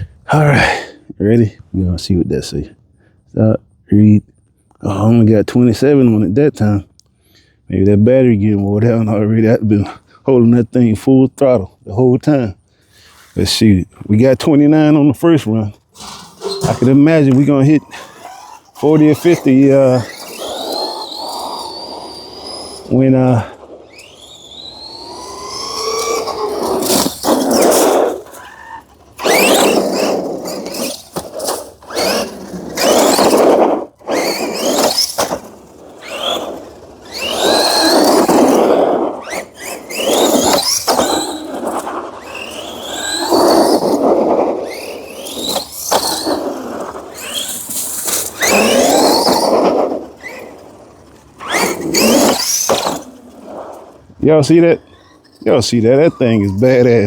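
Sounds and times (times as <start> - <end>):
tyres on asphalt: 0.0 - 57.0
electric motor whining: 15.9 - 57.0.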